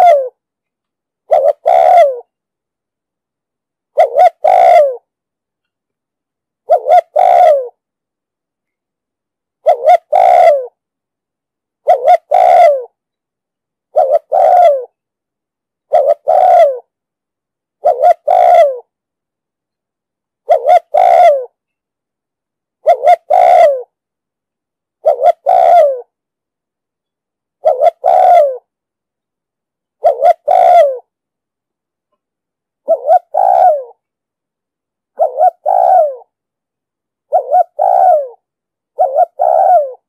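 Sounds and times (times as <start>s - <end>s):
dove cooing: 0.0s - 0.4s, 1.3s - 2.3s, 3.9s - 5.1s, 6.6s - 7.8s, 9.6s - 10.8s, 11.8s - 13.0s, 13.9s - 15.0s, 15.9s - 16.9s, 17.8s - 18.9s, 20.4s - 21.5s, 22.8s - 23.9s, 25.0s - 26.1s, 27.6s - 28.7s, 30.0s - 31.1s, 32.8s - 34.1s, 35.2s - 36.3s, 37.2s - 40.0s.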